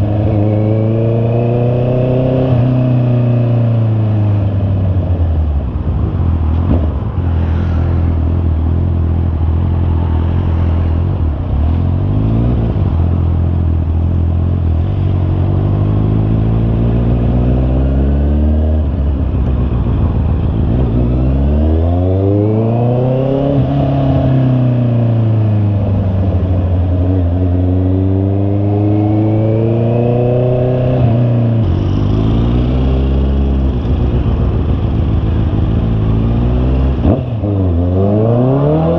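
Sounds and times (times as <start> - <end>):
motorcycle engine revving: 0.0 - 4.7, 26.6 - 38.9.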